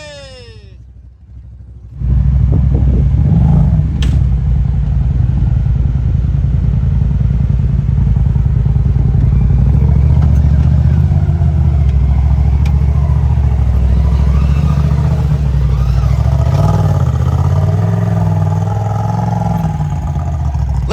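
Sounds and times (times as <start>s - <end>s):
utility vehicle engine running: 0.0s - 20.9s.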